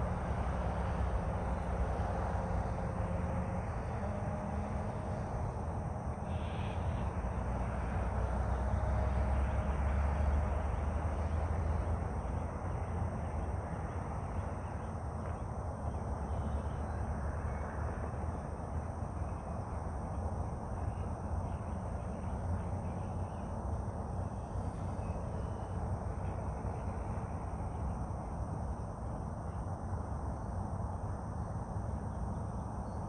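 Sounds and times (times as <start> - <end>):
low outdoor rumble: 0.0 - 33.0.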